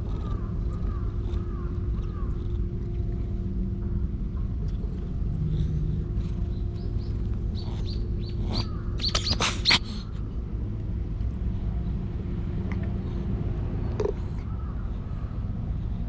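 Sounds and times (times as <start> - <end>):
small birds chirping: 0.0 - 10.4
low steady rumble: 0.0 - 16.0.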